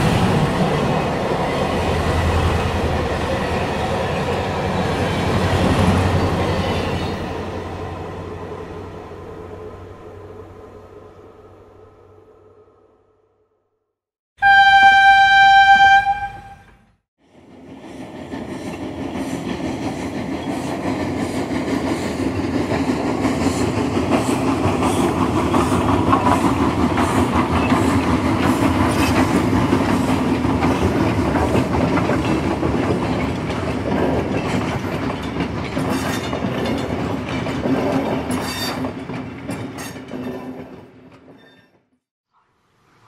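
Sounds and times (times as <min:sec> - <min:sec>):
train wheels rumbling on rails: 0:00.0 - 0:11.6, 0:17.2 - 0:41.8.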